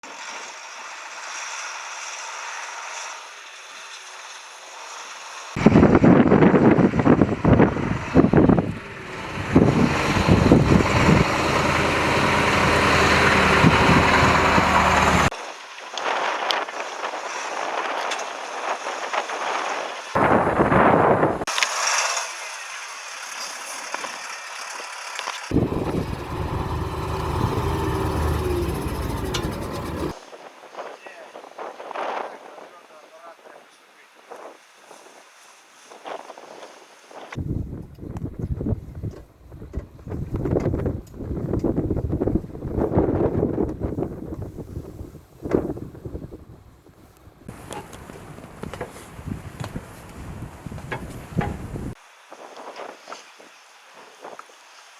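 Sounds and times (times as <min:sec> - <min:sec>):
wind buffeting microphone: 0:05.6 - 0:15.4, 0:20.2 - 0:21.5, 0:25.5 - 0:30.2, 0:37.4 - 0:52.0
vehicle engine idling: 0:07.3 - 0:15.3, 0:25.5 - 0:30.2.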